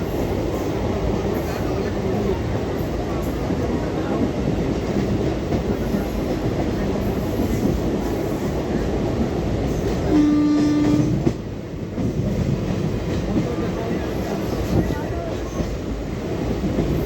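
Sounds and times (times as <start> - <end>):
train wheels rumbling on track: 0.0 - 17.0
train horn: 10.0 - 11.4.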